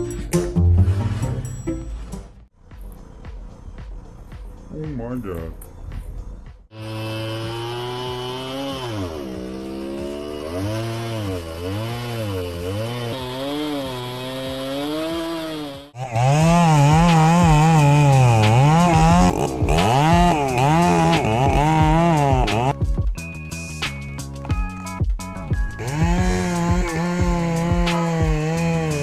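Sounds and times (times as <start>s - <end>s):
higher-pitched saw: 6.7s - 22.7s
chainsaw bogging and revving: 6.7s - 22.8s, 25.3s - 29.0s.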